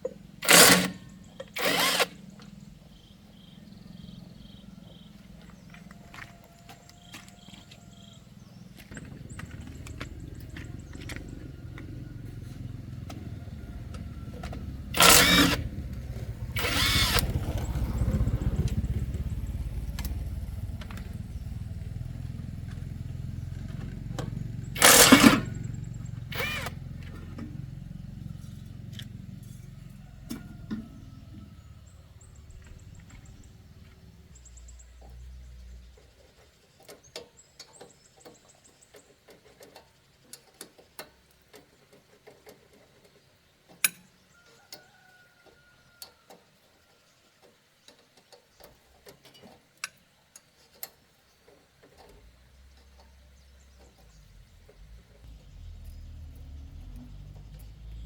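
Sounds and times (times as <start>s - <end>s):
engine low rumble: 0.0s - 39.2s, 51.2s - 58.0s
loud sudden bursts: 16.5s - 17.4s, 24.8s - 25.6s.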